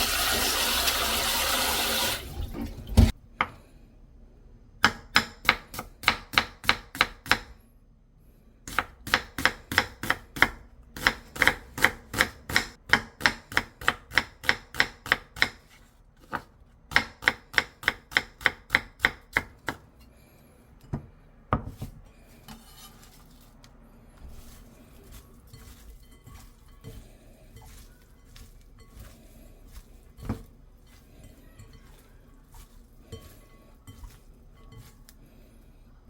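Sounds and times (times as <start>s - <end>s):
knife chopping on cutting board: 4.8s - 7.6s, 8.7s - 19.8s, 24.2s - 30.5s.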